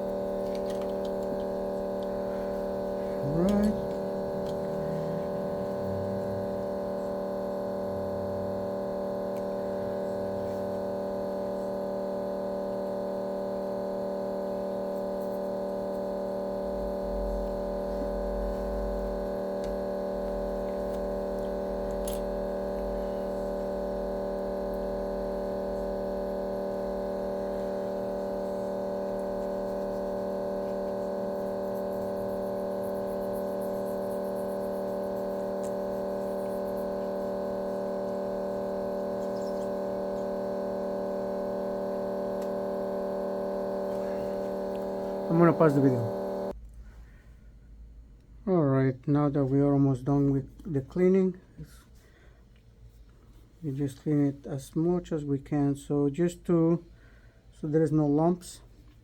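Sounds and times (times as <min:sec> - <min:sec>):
steady tonal hum: 0:00.0 - 0:46.6.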